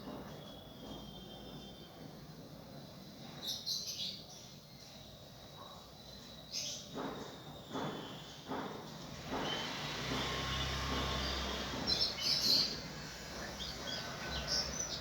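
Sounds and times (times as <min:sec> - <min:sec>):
bird chirping: 0:10.6 - 0:15.0.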